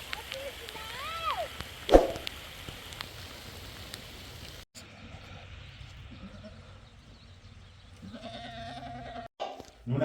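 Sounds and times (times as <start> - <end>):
steady hiss: 0.0 - 4.7
sheep bleating: 8.0 - 9.3.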